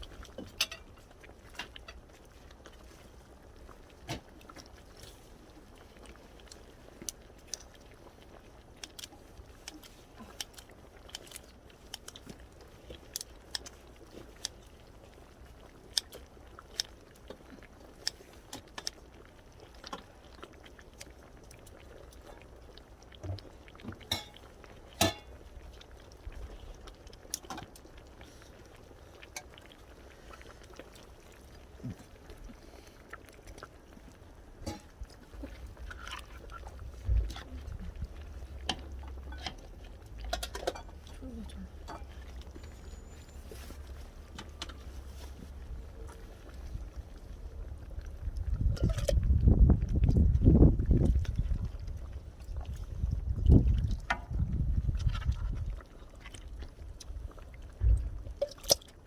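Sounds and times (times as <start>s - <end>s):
person chewing: 5.7s - 43.0s.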